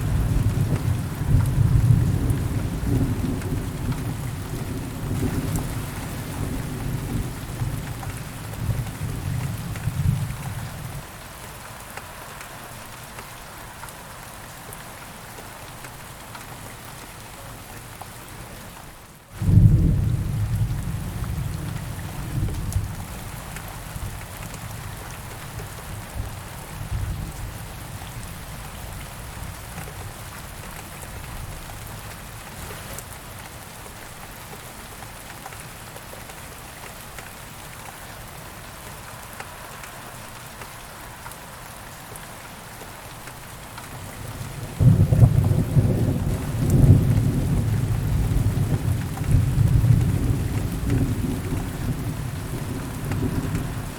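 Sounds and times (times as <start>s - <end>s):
steady rain falling: 0.0s - 53.9s
rolling thunder: 44.2s - 53.9s.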